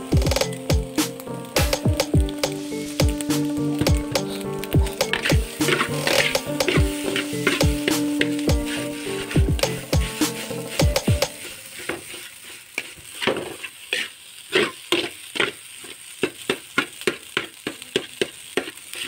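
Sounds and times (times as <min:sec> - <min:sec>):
fried rice sizzling in a pan: 0:00.0 - 0:19.0
utensil scraping a frying pan: 0:04.2 - 0:19.0.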